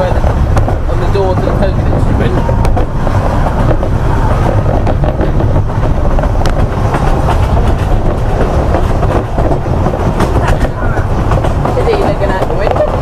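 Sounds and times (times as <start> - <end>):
train coach running rumble: 0.0 - 13.0
wheels clicking on rails: 0.0 - 13.0.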